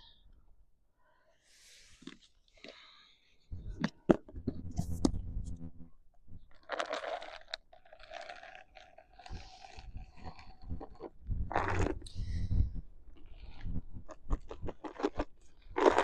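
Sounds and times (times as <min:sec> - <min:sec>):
crunching dry treats: 0:06.4 - 0:16.0.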